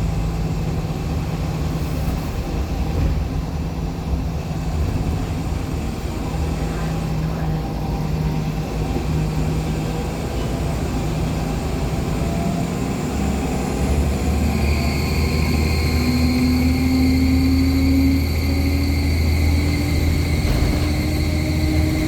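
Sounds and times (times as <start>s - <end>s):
bus engine low drone: 0.0s - 22.0s
turbo whine: 13.6s - 22.0s.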